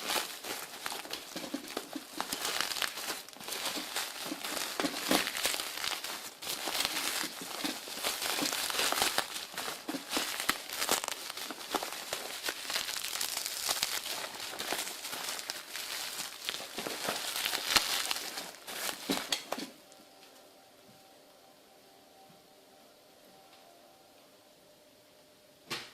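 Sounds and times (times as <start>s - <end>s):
packaging crinkling: 0.0s - 19.9s
faint steady hum: 0.0s - 25.9s.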